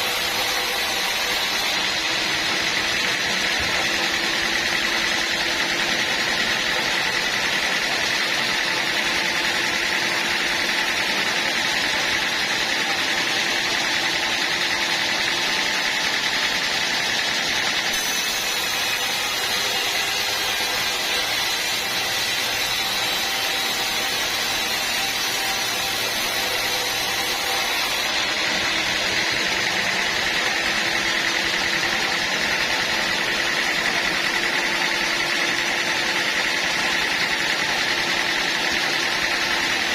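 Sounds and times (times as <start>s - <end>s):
sawmill machine drone: 0.0s - 39.9s
saw cutting hiss: 18.0s - 31.3s.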